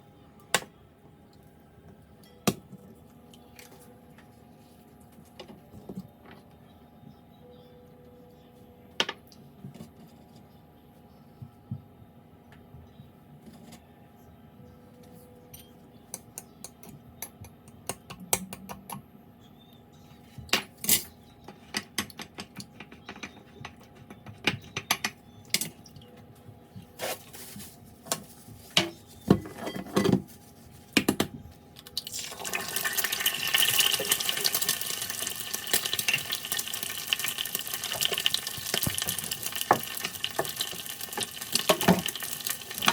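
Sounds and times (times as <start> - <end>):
utensils clinking on dishes: 20.6 - 21.2, 28.8 - 30.3
food sizzling in a pan: 32.1 - 42.9.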